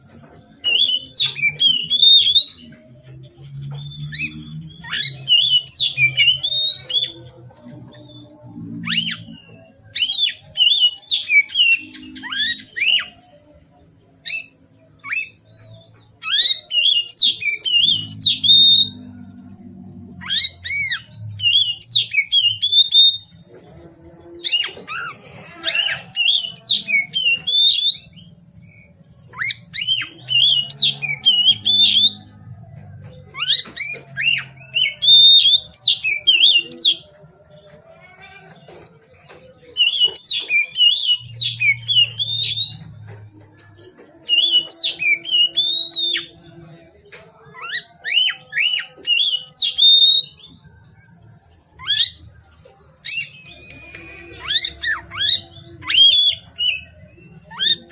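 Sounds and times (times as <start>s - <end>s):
bird singing whistled phrases: 0.6s - 2.8s, 3.7s - 7.2s, 8.6s - 13.2s, 14.2s - 19.1s, 20.2s - 23.4s, 24.4s - 32.2s, 33.3s - 37.1s, 39.7s - 42.9s, 44.2s - 46.4s, 47.6s - 50.6s, 51.8s - 52.2s, 52.9s - 57.9s.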